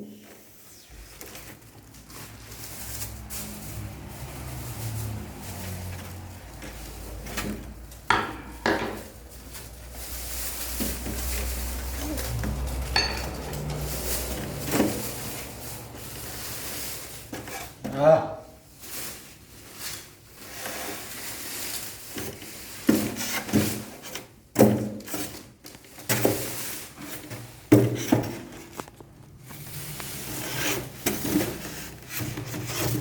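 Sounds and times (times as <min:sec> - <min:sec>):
rumble of objects being handled: 0:00.2 - 0:18.0, 0:25.0 - 0:33.0
objects clattering: 0:01.1 - 0:18.0, 0:18.9 - 0:33.0.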